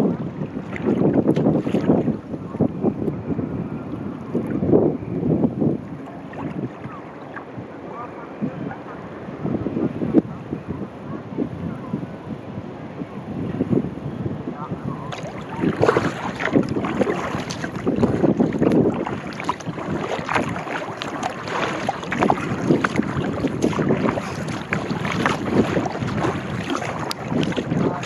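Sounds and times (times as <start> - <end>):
paddle splashing water: 0.0 - 4.8, 5.8 - 9.0, 15.0 - 28.0
water lapping against hull: 0.0 - 11.9, 13.6 - 28.0
wind buffeting microphone: 0.0 - 28.0.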